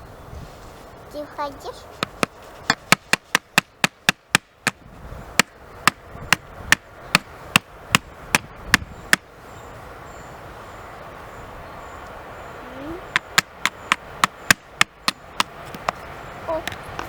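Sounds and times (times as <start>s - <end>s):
steady hiss: 0.0s - 17.0s
sharp evenly spaced knocks: 2.0s - 9.3s, 13.1s - 16.0s.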